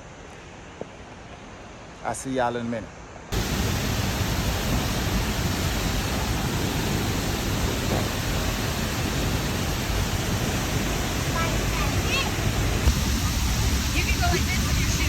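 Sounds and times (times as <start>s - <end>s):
waterfall rushing: 3.3s - 15.0s.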